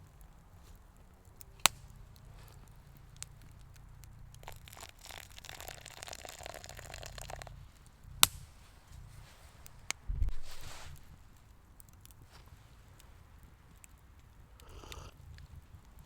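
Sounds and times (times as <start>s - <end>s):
crinkling and tearing: 0.7s - 7.6s.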